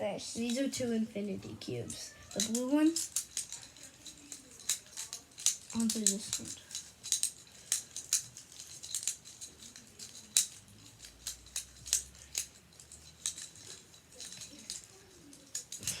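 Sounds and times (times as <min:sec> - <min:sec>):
plastic fidget cube clicking: 0:02.3 - 0:12.6.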